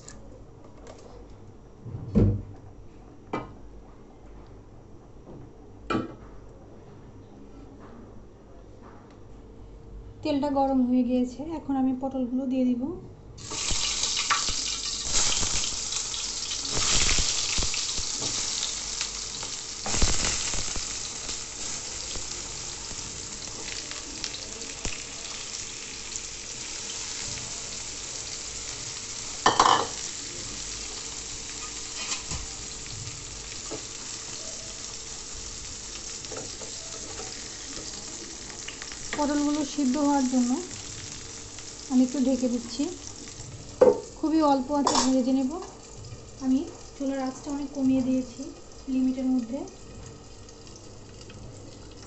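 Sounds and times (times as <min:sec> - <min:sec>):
vegetables sizzling in oil: 0:13.4 - 0:52.0.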